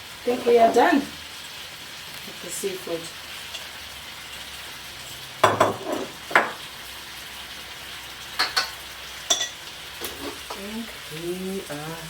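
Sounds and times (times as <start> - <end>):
seafood sizzling in a pan: 0.0 - 12.0
utensil knocking against pan: 5.4 - 6.6.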